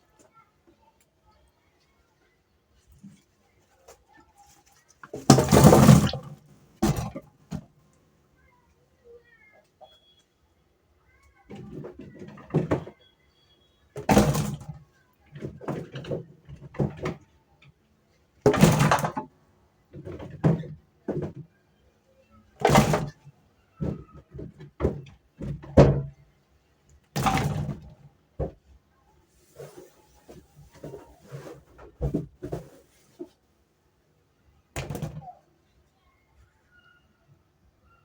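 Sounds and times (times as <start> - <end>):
household items knocking: 5.1 - 7.6, 18.5 - 19.2, 22.6 - 23.2.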